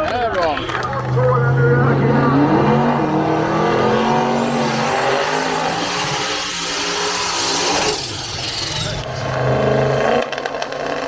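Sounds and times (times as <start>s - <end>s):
race car engine accelerating: 0.6s - 11.0s.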